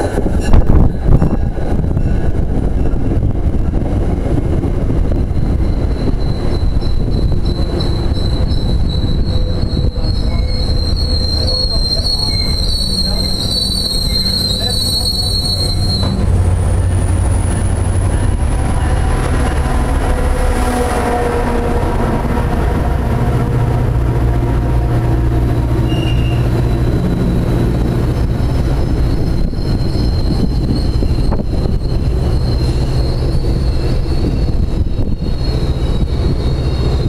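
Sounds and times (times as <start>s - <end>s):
train rumbling past: 0.0s - 37.0s
train wheels squealing: 5.4s - 16.4s, 25.8s - 37.0s.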